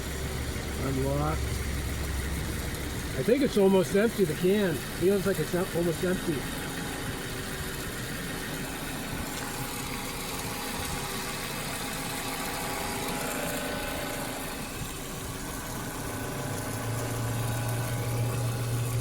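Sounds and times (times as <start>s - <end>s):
air-conditioning compressor running: 0.0s - 19.0s
car engine idling: 0.0s - 19.0s.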